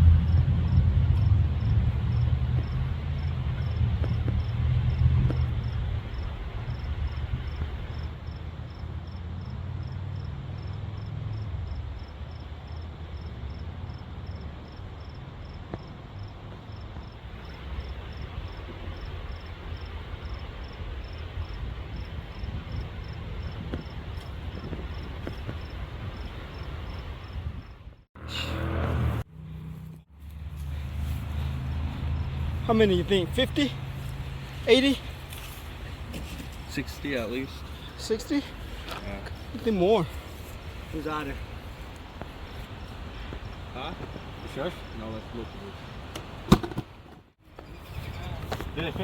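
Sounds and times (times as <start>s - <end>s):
low rumble: 0.0s - 7.9s
cricket chirping: 0.0s - 28.0s, 30.3s - 46.8s.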